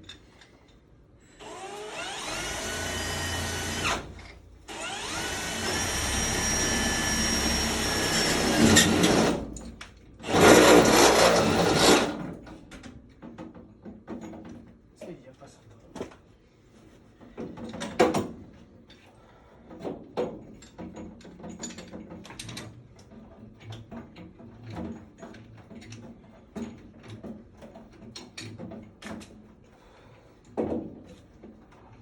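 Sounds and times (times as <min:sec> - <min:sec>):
tools clicking and knocking: 0:19.8 - 0:29.4.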